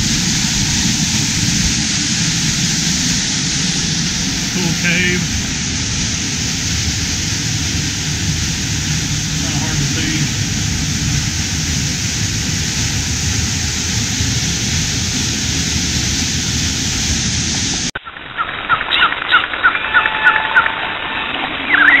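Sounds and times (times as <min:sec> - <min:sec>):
steady rushing noise with rumble: 0:00.0 - 0:22.0.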